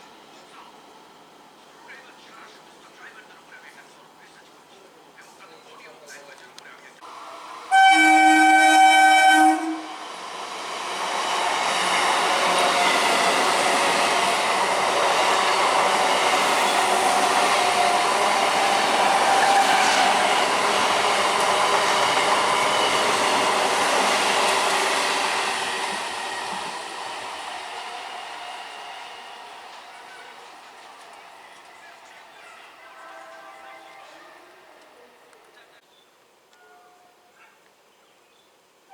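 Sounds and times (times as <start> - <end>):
train wheels rattling on rail: 7.4 - 34.2
train horn blast: 7.6 - 10.1, 16.6 - 20.6, 32.7 - 34.8, 36.6 - 37.3.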